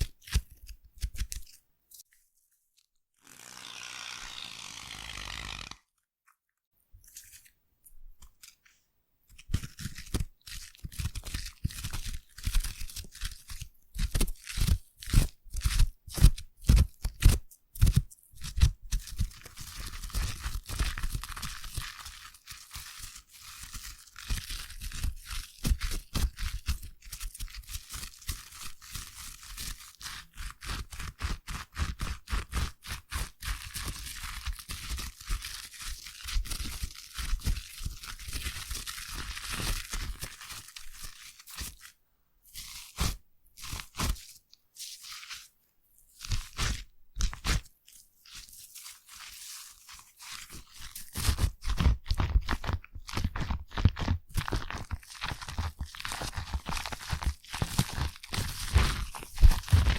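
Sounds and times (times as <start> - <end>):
foam lather crackling and squishing: 18.4 - 59.9.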